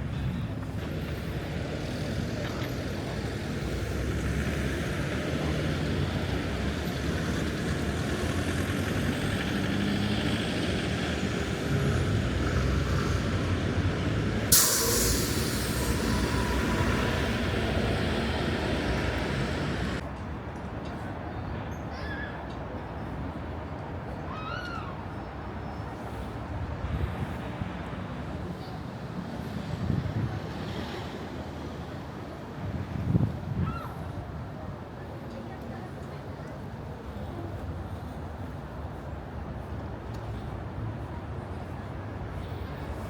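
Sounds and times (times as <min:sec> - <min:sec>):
city traffic engines and tyres: 0:00.0 - 0:43.0
loud hiss of air brakes: 0:11.1 - 0:20.0.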